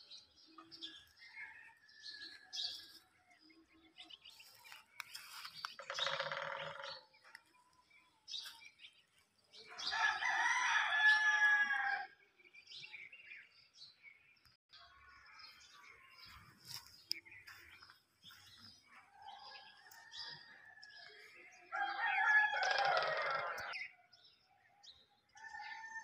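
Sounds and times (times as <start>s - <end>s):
birds chirping: 0.0s - 26.0s
long loud bird calls: 4.4s - 7.2s, 19.2s - 24.5s.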